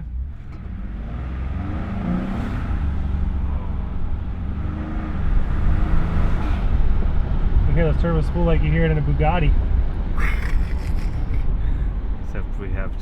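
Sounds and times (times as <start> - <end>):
truck engine accelerating: 0.0 - 13.0.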